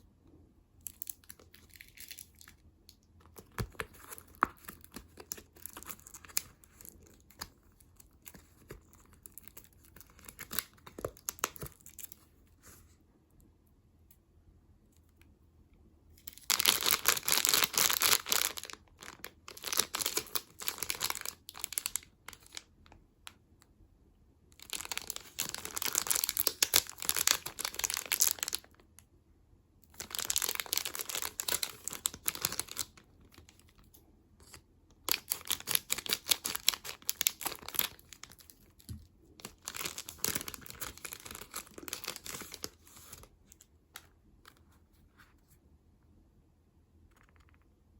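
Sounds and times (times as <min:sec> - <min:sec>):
plastic wrappers crinkling: 0:03.3 - 0:12.2, 0:16.3 - 0:22.7, 0:24.6 - 0:28.8, 0:30.0 - 0:33.8, 0:35.0 - 0:43.6.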